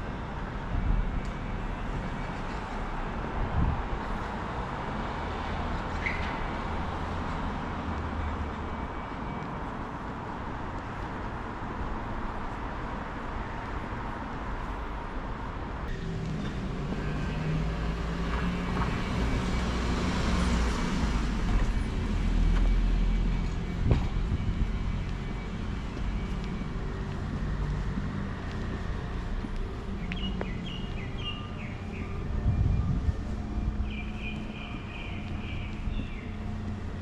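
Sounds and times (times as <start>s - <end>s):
road traffic: 0.0s - 37.0s
birds chirping: 29.8s - 32.3s, 33.8s - 36.8s.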